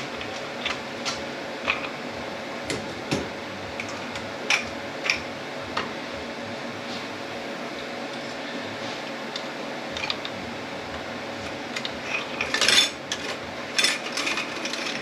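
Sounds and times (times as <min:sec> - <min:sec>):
metallic clatter: 0:11.7 - 0:15.0
metal parts clinking: 0:11.8 - 0:15.0.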